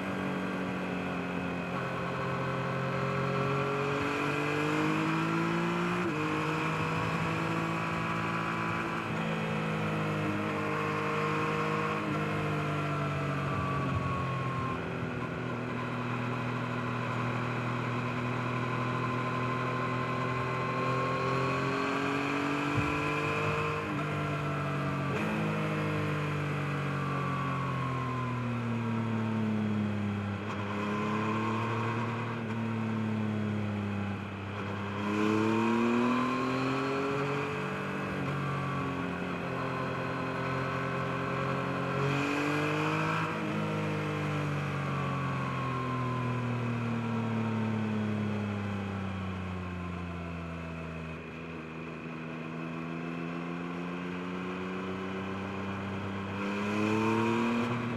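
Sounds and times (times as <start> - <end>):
motorcycle engine revving: 51.2 - 57.9.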